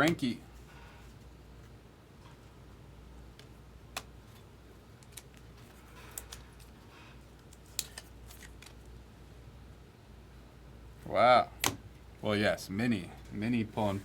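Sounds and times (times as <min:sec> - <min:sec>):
trading cards clicking and snapping: 0:03.4 - 0:04.1, 0:05.0 - 0:06.8, 0:07.4 - 0:08.9.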